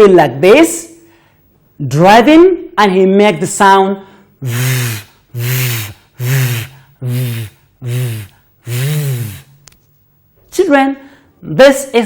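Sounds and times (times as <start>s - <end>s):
person making buzzing v sound: 4.4s - 9.7s.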